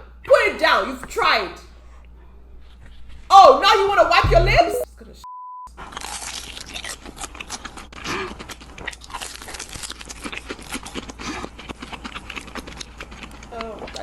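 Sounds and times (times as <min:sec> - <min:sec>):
crunching bites and chewing: 0:05.8 - 0:14.0.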